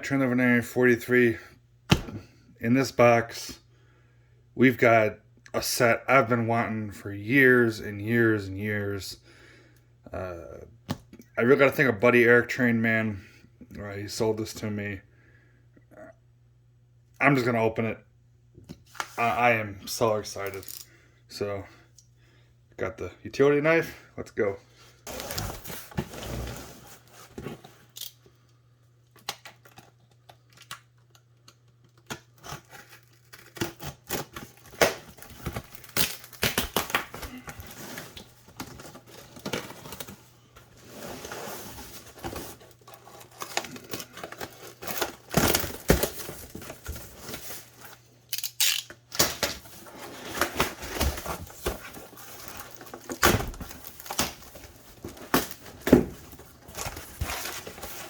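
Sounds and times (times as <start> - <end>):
tape tearing: 31.9 - 40.1, 48.3 - 55.9
cardboard flaps rustling: 49.4 - 58.0.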